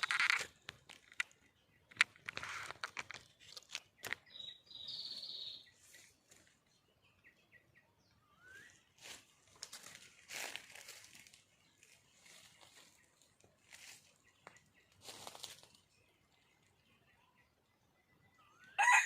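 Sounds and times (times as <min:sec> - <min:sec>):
faint bird chirps: 0:03.8 - 0:19.0.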